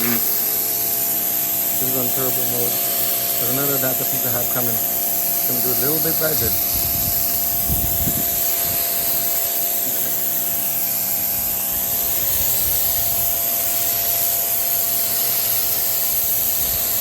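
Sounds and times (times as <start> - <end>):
pressure washer motor hum: 0.0 - 17.0
water jet hissing on surface: 0.0 - 17.0.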